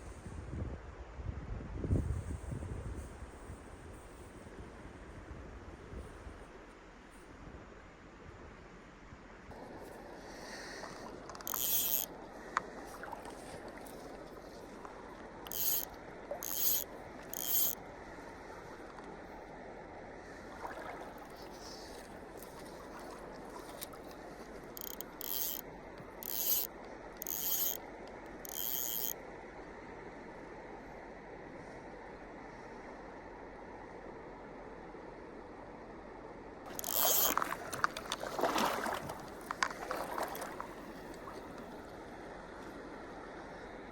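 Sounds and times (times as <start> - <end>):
fly line rasping through rod guides: 10.5 - 17.8, 21.2 - 29.2, 36.7 - 41.8
stream water rushing: 20.4 - 27.8, 36.7 - 42.0.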